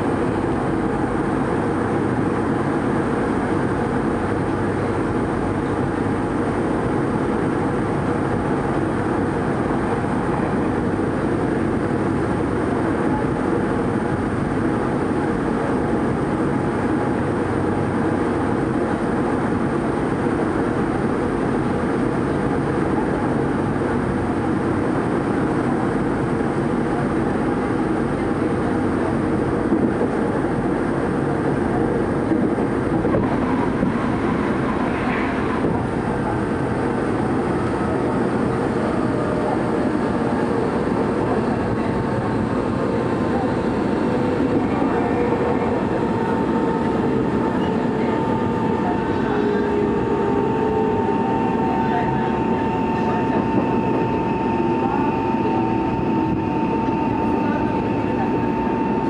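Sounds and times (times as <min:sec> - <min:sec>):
faint steady hum: 0:00.0 - 0:59.0
passing train rush: 0:00.0 - 0:59.0
train wheels rumbling on rails: 0:00.0 - 0:59.0.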